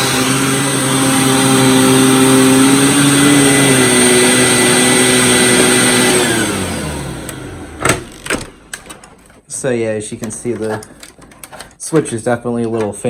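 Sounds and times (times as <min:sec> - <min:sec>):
upright vacuum cleaner running: 0:00.0 - 0:09.5, 0:10.2 - 0:11.8.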